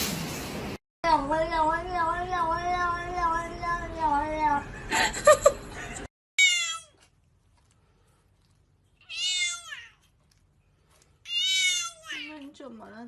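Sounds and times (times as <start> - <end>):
cat meowing: 6.4 - 7.0, 9.0 - 10.0, 11.2 - 12.3.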